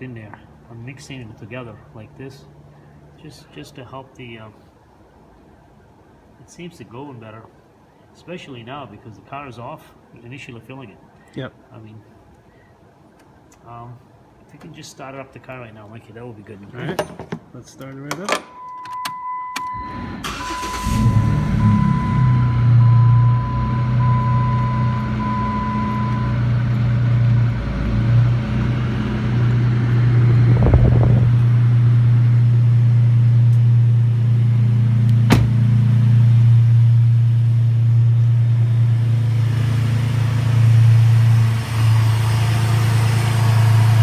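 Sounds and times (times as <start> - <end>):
beeping warning chime: 18.5 - 26.7
car engine idling: 20.2 - 44.0
brief rumble: 30.1 - 31.7.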